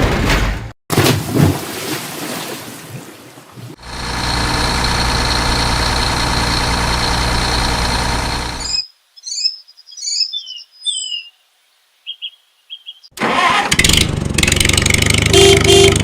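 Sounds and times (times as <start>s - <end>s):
engine idling: 3.8s - 8.7s, 13.7s - 16.0s.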